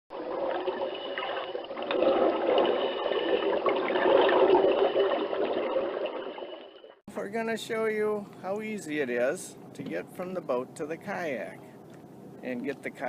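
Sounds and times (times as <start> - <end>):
water sloshing and trickling: 0.1 - 7.0.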